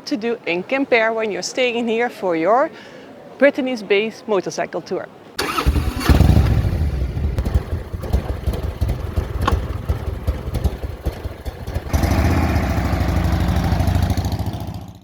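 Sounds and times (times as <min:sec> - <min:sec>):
motorcycle engine idling: 0:05.4 - 0:15.0.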